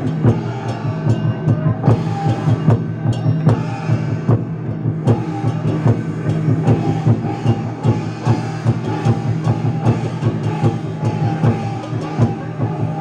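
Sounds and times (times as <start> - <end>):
drum and percussion steady beat: 0.0 - 13.0.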